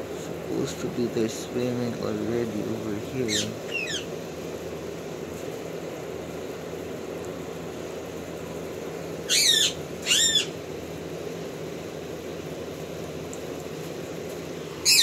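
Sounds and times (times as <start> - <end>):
steady low hum: 0.0 - 15.0
wavering bird call: 3.2 - 4.1, 9.2 - 10.6.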